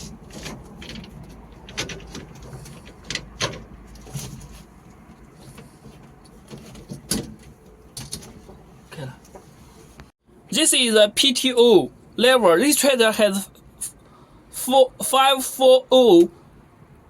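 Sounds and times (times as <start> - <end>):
gear lever clicks and clunks: 0.0 - 4.5, 5.5 - 8.6.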